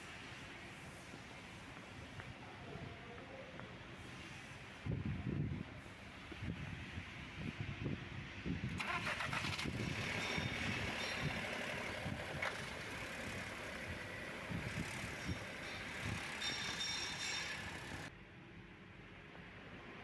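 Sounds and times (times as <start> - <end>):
car engine idling: 8.8 - 18.1.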